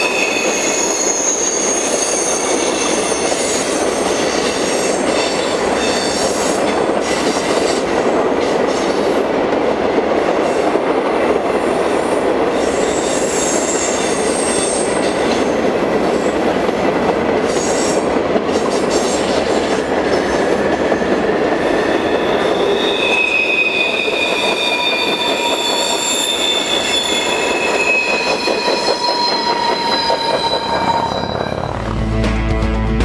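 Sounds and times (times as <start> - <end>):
wheel squeals: 0.0 - 4.2, 22.1 - 31.8
train wheels rumbling on rail: 0.0 - 32.3.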